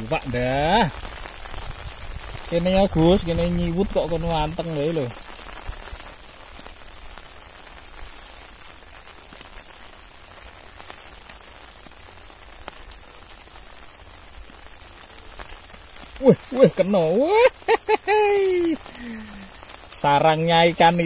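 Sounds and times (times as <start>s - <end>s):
raindrop ticks: 0.0s - 21.0s
steady rain: 0.0s - 21.0s.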